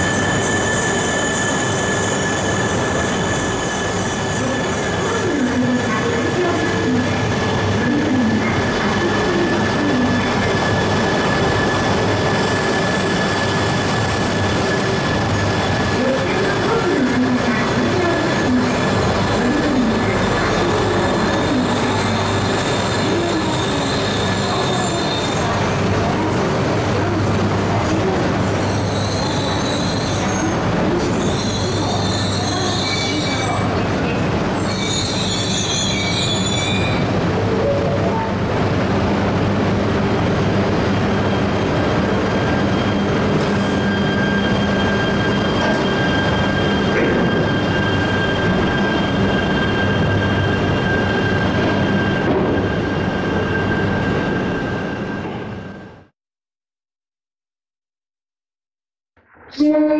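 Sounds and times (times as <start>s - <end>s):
high-pitched wheel squeals: 0.0s - 16.6s, 19.9s - 25.6s, 28.4s - 33.7s, 34.4s - 37.1s, 42.0s - 56.0s
train running hum: 0.0s - 56.1s.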